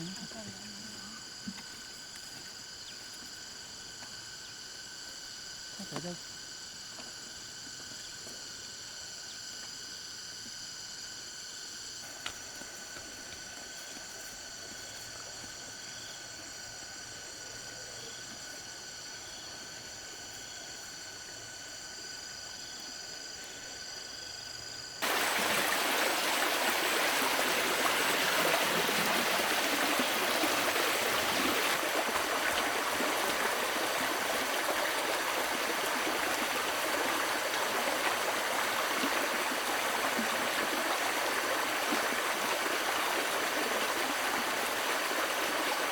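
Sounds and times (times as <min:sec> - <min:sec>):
insects chirping: 0:00.0 - 0:45.9
rushing water: 0:25.0 - 0:45.9.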